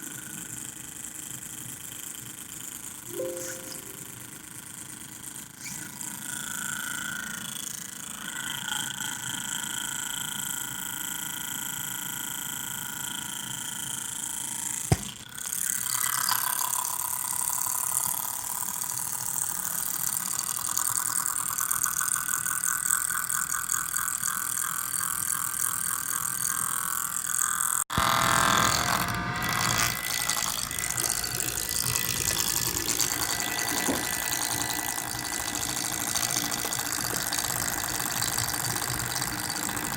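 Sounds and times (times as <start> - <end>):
laptop cooling fan whining and rattling: 28.0 - 39.9.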